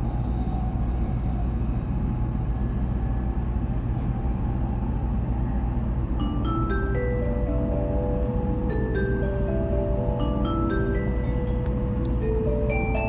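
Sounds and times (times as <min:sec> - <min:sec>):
train rumbling at speed: 0:00.0 - 0:13.0
bell-like announcement chime: 0:06.2 - 0:13.0.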